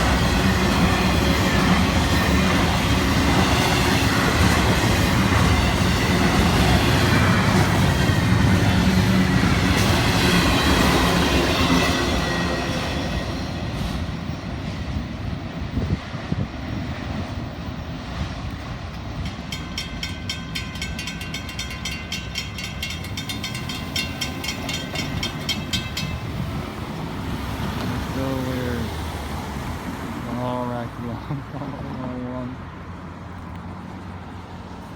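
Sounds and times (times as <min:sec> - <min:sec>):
freight train wheels clacking: 0:00.0 - 0:15.6, 0:17.0 - 0:28.2
rapid repeated ringing: 0:19.3 - 0:26.4.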